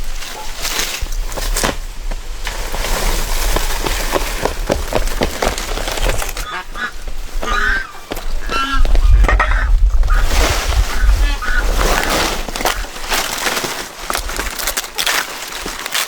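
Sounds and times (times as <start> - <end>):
poultry calling: 6.0 - 12.9.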